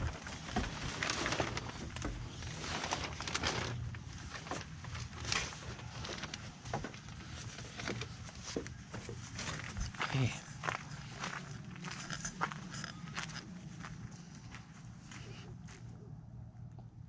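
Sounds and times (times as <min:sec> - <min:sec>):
low steady hum: 0:00.0 - 0:17.0
footsteps: 0:04.6 - 0:16.0.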